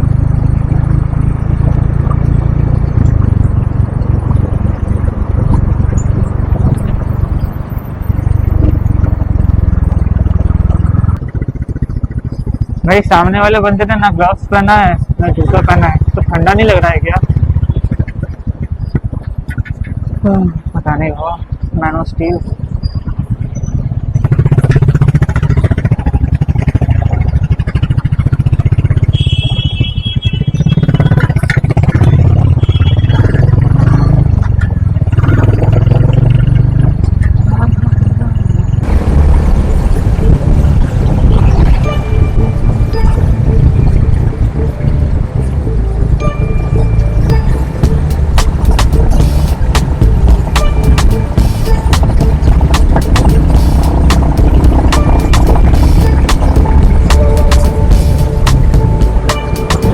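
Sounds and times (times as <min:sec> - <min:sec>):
wind rush on microphone: 0:00.0 - 0:46.2, 0:47.2 - 0:59.9
motorcycle engine: 0:00.0 - 0:59.9
road noise: 0:00.0 - 0:59.9
high steady tone: 0:37.5 - 0:59.9.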